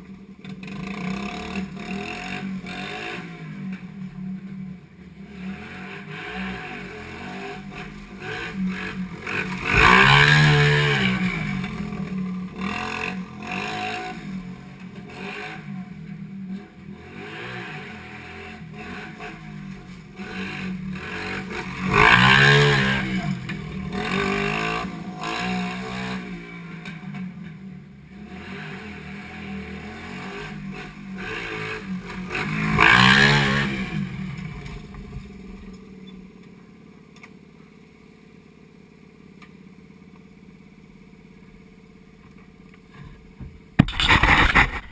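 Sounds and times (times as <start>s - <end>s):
pit bike engine revving: 0.6s - 4.4s, 5.2s - 36.0s, 43.8s - 44.9s.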